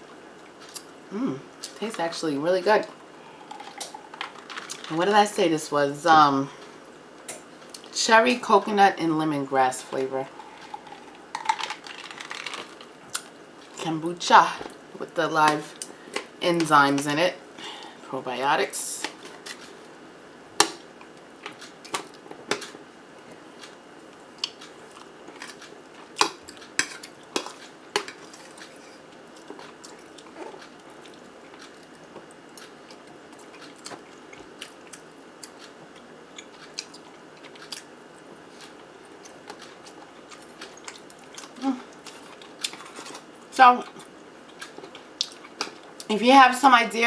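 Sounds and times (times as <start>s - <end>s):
soft chewing: 21.0s - 46.1s.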